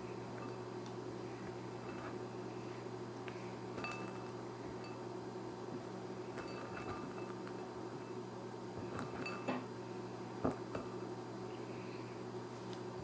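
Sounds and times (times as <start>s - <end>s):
low electrical hum: 0.0s - 13.0s
dishes clicking and clinking: 3.8s - 5.0s, 6.3s - 7.7s, 8.8s - 9.7s.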